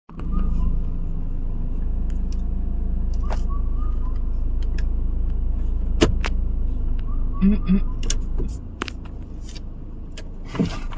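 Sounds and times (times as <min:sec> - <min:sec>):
birds whistling: 0:00.1 - 0:01.0, 0:03.2 - 0:04.5, 0:07.0 - 0:08.2
vehicle engine idling: 0:00.1 - 0:10.9.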